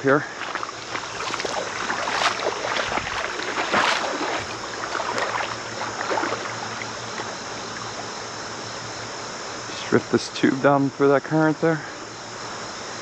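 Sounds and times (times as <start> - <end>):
river current rushing: 0.0 - 7.8
water sloshing and splashing: 0.0 - 8.0.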